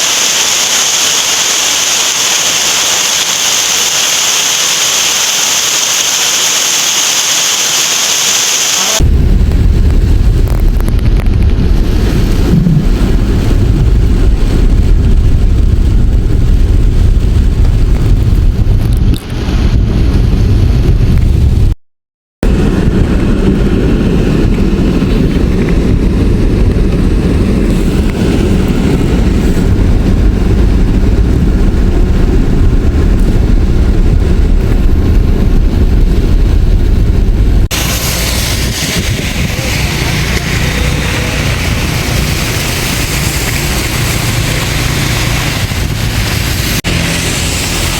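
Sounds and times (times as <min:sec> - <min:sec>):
heavy rain and floodwater rushing: 0:00.0 - 0:20.4, 0:37.5 - 0:47.9.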